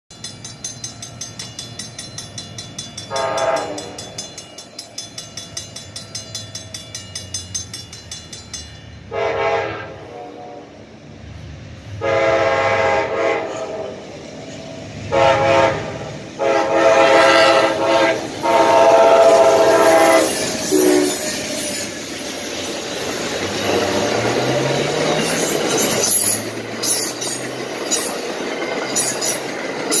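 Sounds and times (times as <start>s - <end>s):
wheels clicking over rail joints: 0.1s - 9.1s, 17.3s - 30.0s
train horn blasts: 3.1s - 4.2s, 9.1s - 10.9s, 11.9s - 14.0s, 15.1s - 21.2s.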